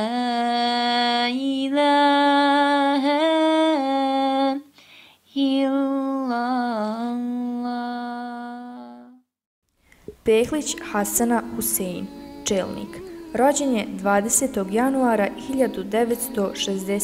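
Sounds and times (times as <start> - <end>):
person chanting religious melody: 10.3 - 17.0.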